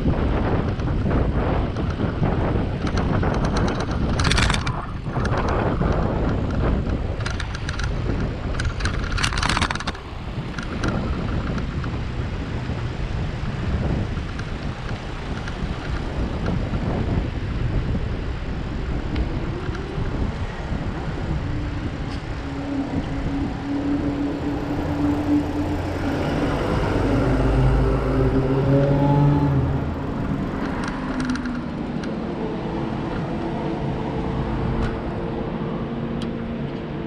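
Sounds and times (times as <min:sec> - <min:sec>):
low rumble of bicycle ride: 0:00.0 - 0:37.0
wind buffeting microphone: 0:00.0 - 0:37.0
rattling clicks: 0:02.8 - 0:12.0, 0:30.2 - 0:32.2.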